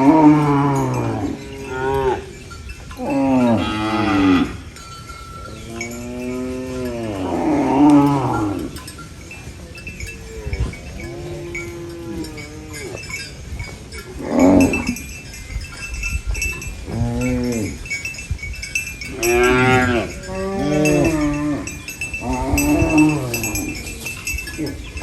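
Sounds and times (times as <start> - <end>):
cows mooing: 0.0 - 9.0, 9.7 - 15.1, 16.3 - 18.0, 19.0 - 25.0.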